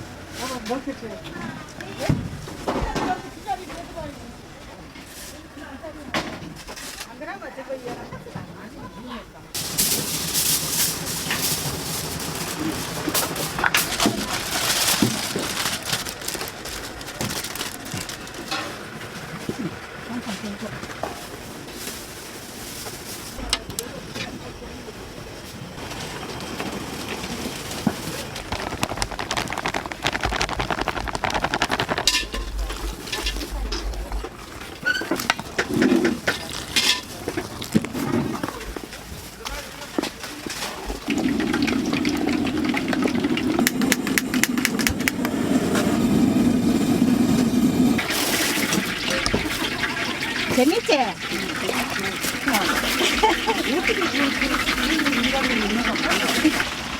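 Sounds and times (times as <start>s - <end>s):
faint voices: 0.0s - 56.9s
oil sizzling in a deep fryer: 9.6s - 19.2s, 40.4s - 56.9s
rapid clicks: 27.0s - 33.4s
metal utensils and dishes clinking: 32.0s - 39.0s, 48.0s - 56.8s.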